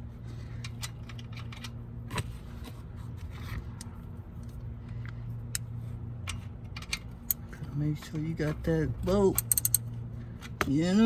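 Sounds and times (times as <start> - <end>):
steady low hum: 0.0 - 11.0
metal tool clicks and clinks: 9.2 - 9.9.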